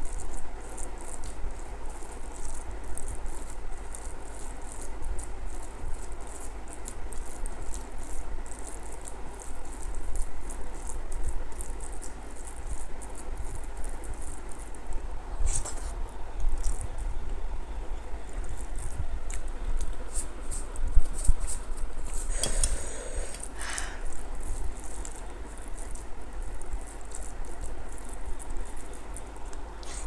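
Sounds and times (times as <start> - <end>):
wet chewing clicks and smacks: 18.2 - 20.0, 24.1 - 29.7.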